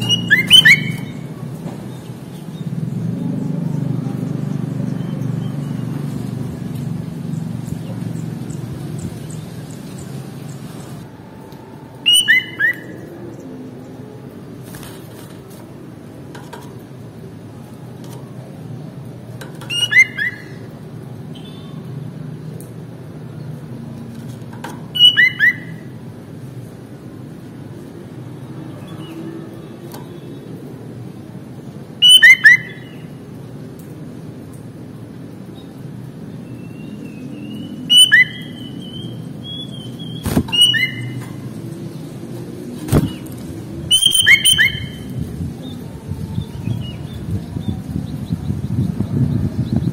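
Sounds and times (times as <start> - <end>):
bird chirping: 0.0 - 11.0, 12.0 - 13.0, 19.6 - 20.7, 25.0 - 25.8, 32.0 - 33.1, 36.4 - 42.2, 42.9 - 45.8
thin high whistle: 43.9 - 44.9.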